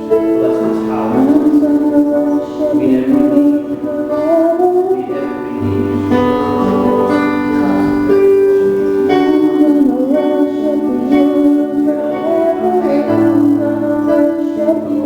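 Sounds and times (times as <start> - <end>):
keyboard chords: 0.0 - 15.0
woman singing: 1.2 - 5.8, 9.3 - 15.0.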